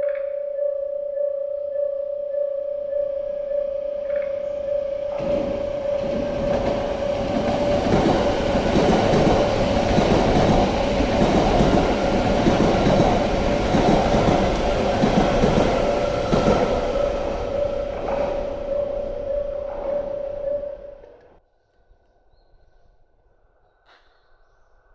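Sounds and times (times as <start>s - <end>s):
train wheels clattering over rails: 5.1s - 18.7s.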